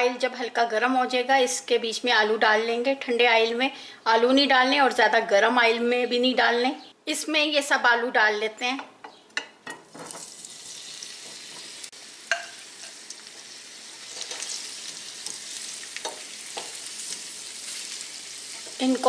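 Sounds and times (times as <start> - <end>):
potatoes sizzling in oil: 9.8 - 19.0.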